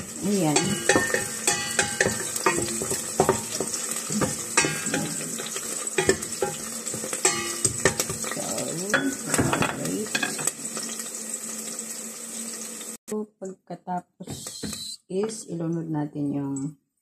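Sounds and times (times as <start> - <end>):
wooden spoon scraping a pot: 0.0 - 10.9
garlic and onion sizzling in oil: 0.0 - 13.0.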